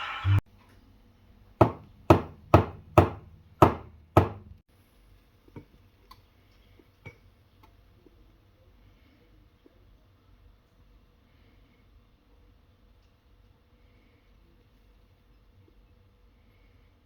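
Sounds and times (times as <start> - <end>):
sharp hard knocks: 1.6 - 4.5.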